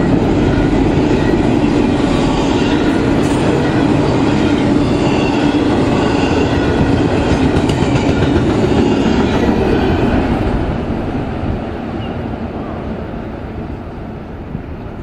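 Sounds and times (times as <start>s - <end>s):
freight train wheels rumbling: 0.0s - 15.0s
clickety-clack over rail joints: 5.8s - 9.4s.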